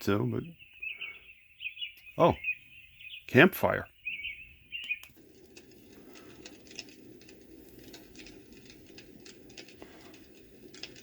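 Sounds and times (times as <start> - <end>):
fire crackling and popping: 4.8 - 11.0.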